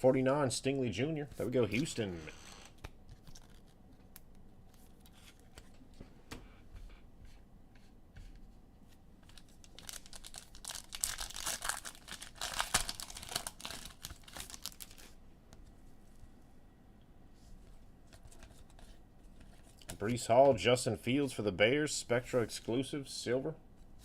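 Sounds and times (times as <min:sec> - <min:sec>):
foil wrapper tearing and crinkling: 0:09.3 - 0:15.2.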